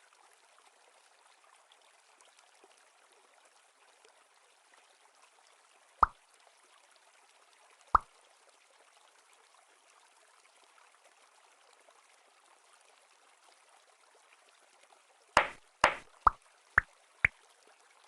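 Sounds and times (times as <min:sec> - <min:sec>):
objects plopping into water: 0:15.4 - 0:16.4.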